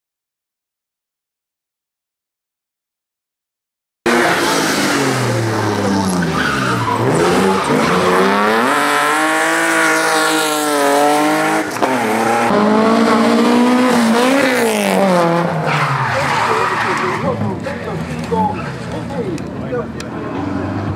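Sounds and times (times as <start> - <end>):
car engine revving hard: 4.1 - 17.4.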